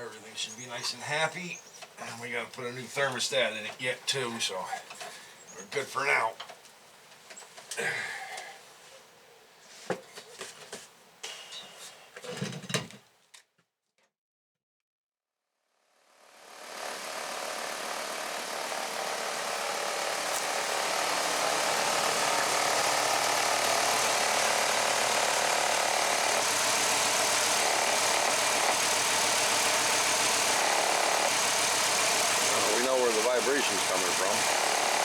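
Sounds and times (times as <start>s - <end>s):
car engine running: 16.3s - 35.0s.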